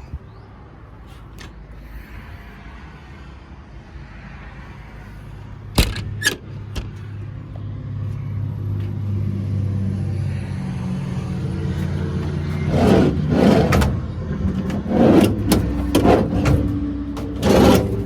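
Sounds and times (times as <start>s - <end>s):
diesel truck engine idling: 5.5s - 18.0s.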